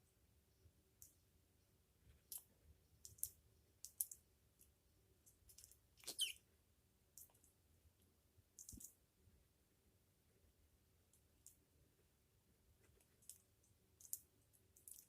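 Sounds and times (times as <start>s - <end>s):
parrot squeak: 6.0s - 6.4s.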